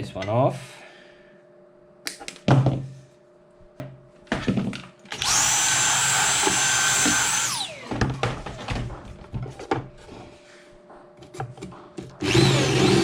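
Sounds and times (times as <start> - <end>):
power tool high whine: 5.2 - 8.1, 12.2 - 13.0
knocks and handling clatter: 7.9 - 12.2.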